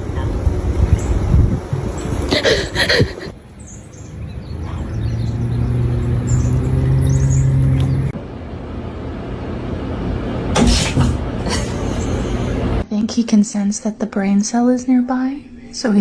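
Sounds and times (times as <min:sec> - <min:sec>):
short loud noisy burst: 0:10.6 - 0:12.6.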